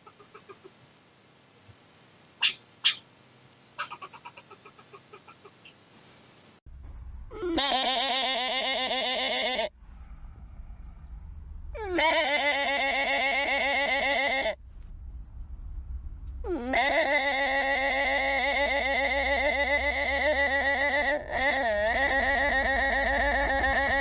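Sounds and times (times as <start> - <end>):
farm animal bleating: 7.4 - 9.7, 11.8 - 14.6, 16.5 - 24.0.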